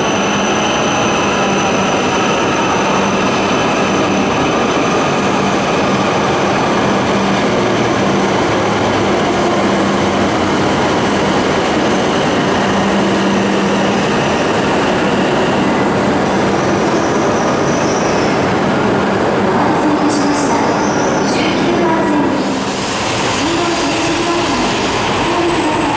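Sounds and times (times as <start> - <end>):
train wheels rumbling: 0.0 - 25.9.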